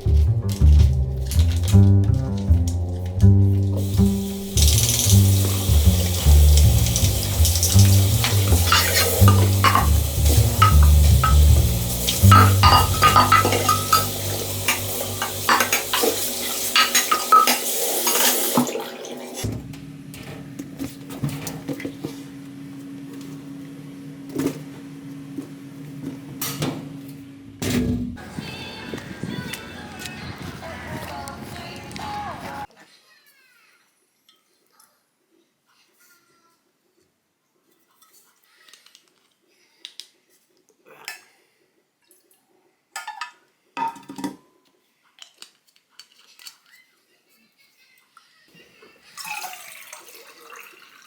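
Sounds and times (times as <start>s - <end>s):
low motor hum: 0.0s - 15.9s
dishes and utensils clinking: 3.8s - 18.9s.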